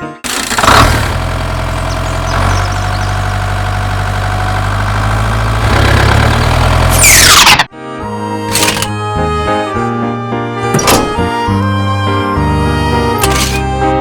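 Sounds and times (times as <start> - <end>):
tractor engine idling: 0.2 - 7.2.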